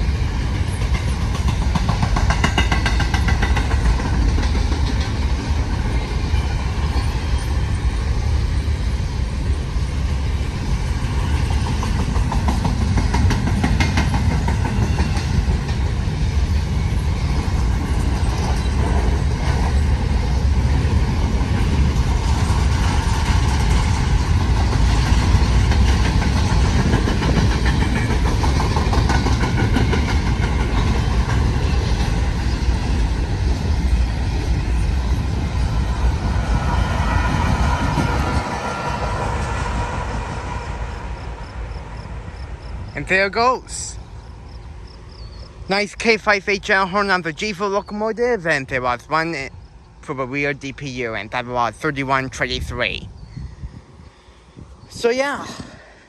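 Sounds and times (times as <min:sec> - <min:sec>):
train wheels clattering on rails: 0:00.0 - 0:42.7.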